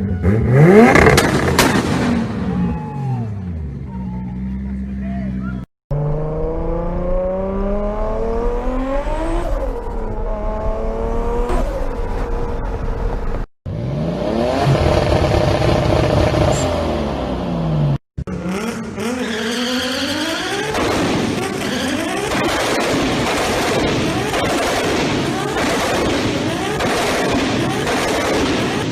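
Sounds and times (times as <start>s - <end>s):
car engine accelerating hard: 5.9s - 22.7s.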